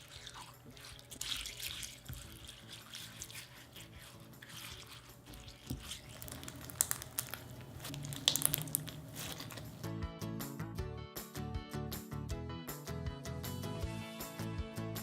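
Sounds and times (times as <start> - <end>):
crunchy slime being stirred: 0.0 - 10.0.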